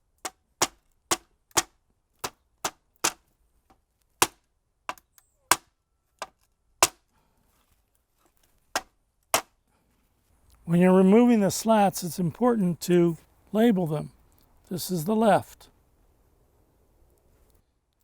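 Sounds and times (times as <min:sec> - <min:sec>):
rubber mallet knocking wood: 0:00.2 - 0:03.2.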